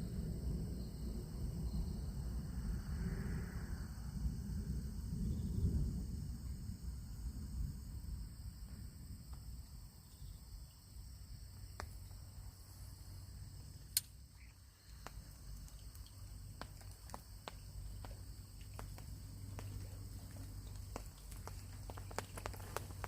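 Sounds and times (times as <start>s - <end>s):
low steady rumble: 0.0s - 23.0s
raindrops tapping on a parasol: 14.9s - 23.0s.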